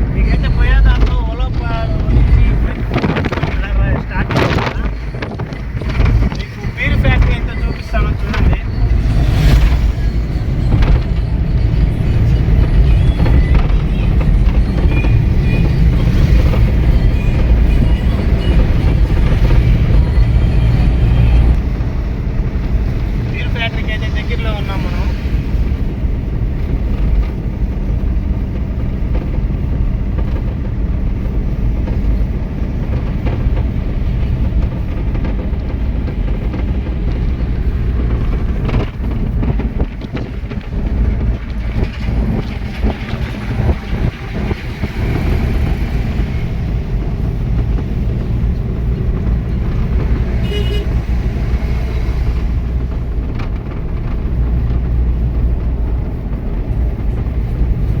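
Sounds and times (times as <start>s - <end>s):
truck engine and road rumble: 0.0s - 58.0s
truck horn toot: 50.1s - 51.5s.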